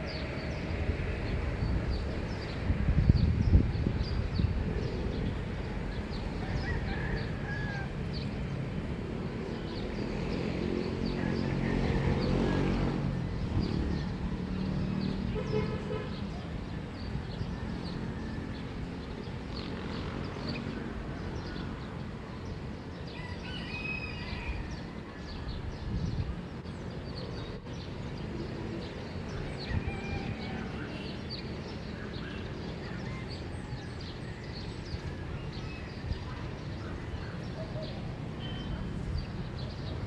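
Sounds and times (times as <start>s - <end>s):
birds chirping: 13.4s - 40.0s.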